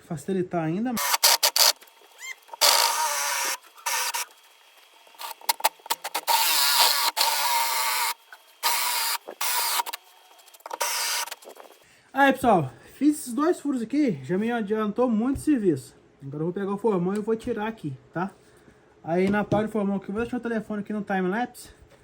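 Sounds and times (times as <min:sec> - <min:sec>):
electric drill whining into wood: 0:01.0 - 0:11.6.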